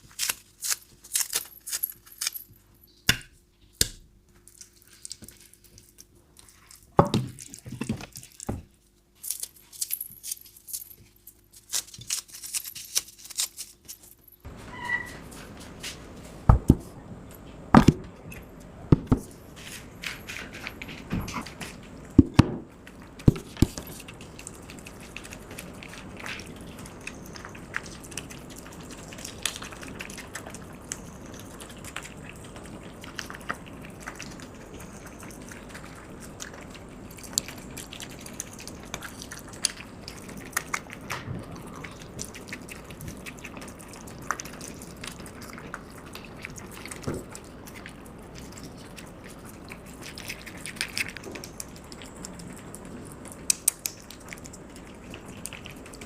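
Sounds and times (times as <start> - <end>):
cats lapping milk: 22.8 - 56.0.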